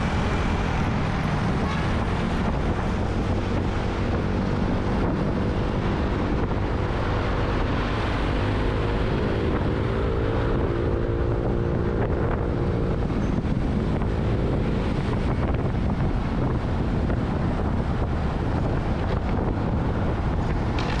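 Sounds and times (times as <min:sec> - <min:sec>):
engine hum: 0:00.0 - 0:21.0
motorcycle road noise: 0:00.0 - 0:21.0
wind buffeting microphone: 0:00.0 - 0:21.0.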